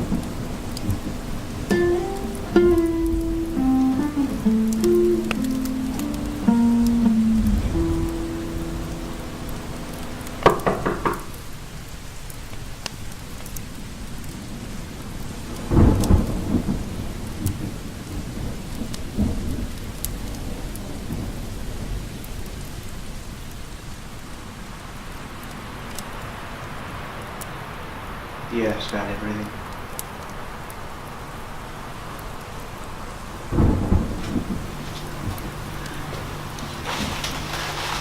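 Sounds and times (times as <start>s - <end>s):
deep rumble of thunder: 0.0s - 3.6s, 15.4s - 22.3s, 33.4s - 38.0s
thunder crashes: 0.0s - 11.4s, 15.6s - 22.0s, 33.4s - 38.0s
heavy rain: 0.0s - 38.0s.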